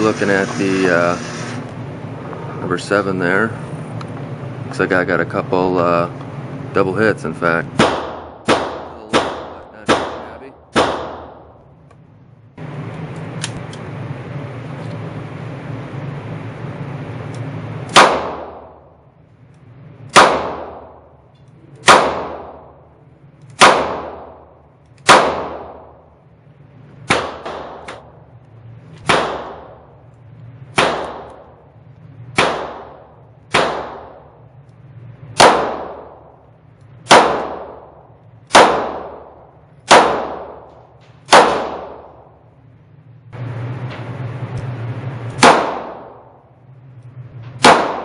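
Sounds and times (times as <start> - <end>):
handgun shots echoing: 38.5 - 40.7, 41.3 - 42.2, 45.3 - 46.3, 47.6 - 48.0.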